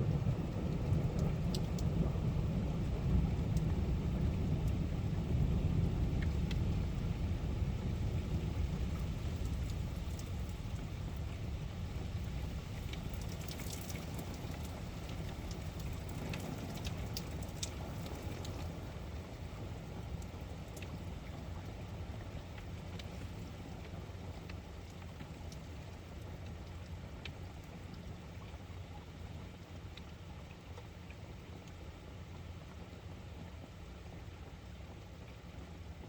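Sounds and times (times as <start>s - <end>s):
raindrops ticking: 0.0s - 36.0s
steady rain: 0.0s - 36.0s.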